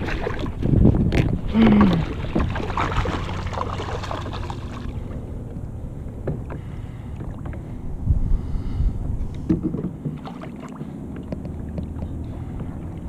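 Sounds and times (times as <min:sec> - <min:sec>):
wind on microphone: 0:00.0 - 0:06.4, 0:07.6 - 0:10.2
water lapping against hull: 0:00.0 - 0:13.0.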